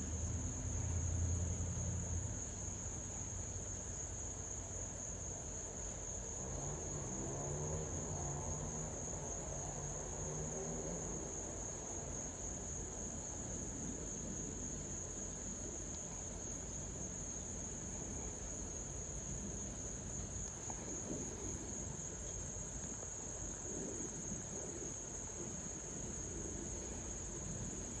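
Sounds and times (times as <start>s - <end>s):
crickets chirring: 0.0s - 28.0s.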